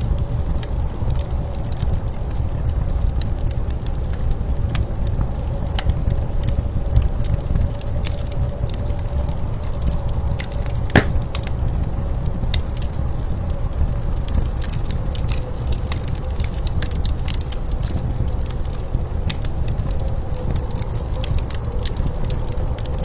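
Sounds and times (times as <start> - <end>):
wood fire crackling and popping: 11.0 - 11.4.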